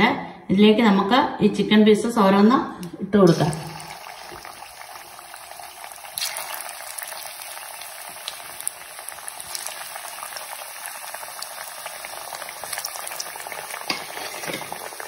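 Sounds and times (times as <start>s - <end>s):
chicken deep-frying in oil: 3.3s - 15.0s.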